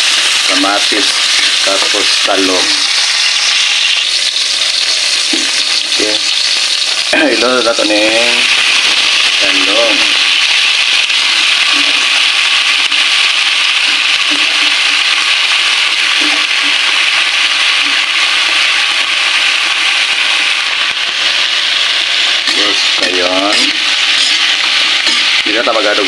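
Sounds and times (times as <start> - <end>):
vegetables sizzling in hot oil: 0.0 - 26.0.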